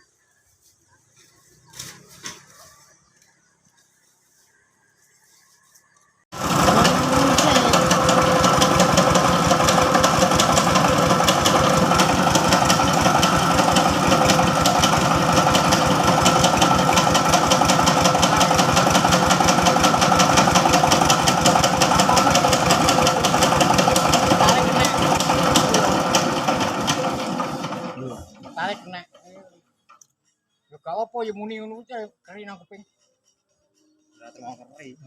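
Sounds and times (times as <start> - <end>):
truck engine running: 6.3 - 28.8.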